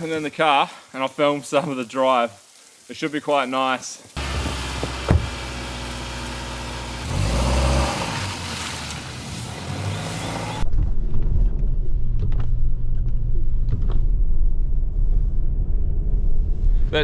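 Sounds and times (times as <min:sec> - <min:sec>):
broad hiss: 0:00.0 - 0:10.6
car engine rumble inside cabin: 0:04.2 - 0:08.2.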